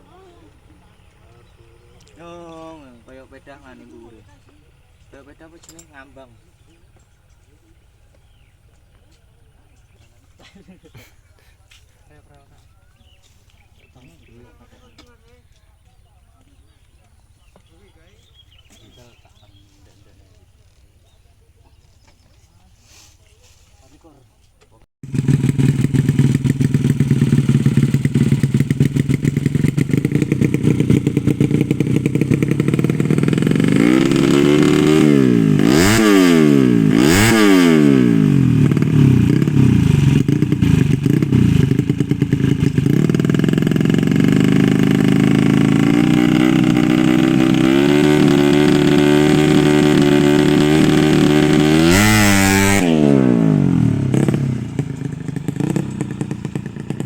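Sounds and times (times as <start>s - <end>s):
motorcycle engine revving: 0.0s - 11.0s, 25.0s - 57.0s.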